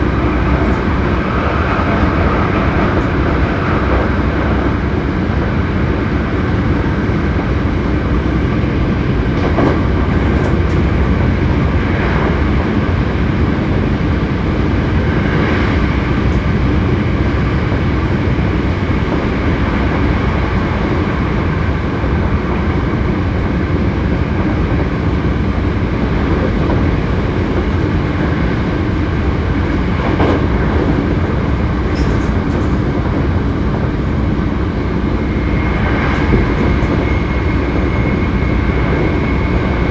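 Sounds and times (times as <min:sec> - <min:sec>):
train wheels rumbling on rail: 0:00.0 - 0:39.9
rail-joint clicks: 0:07.7 - 0:14.2, 0:25.6 - 0:39.9.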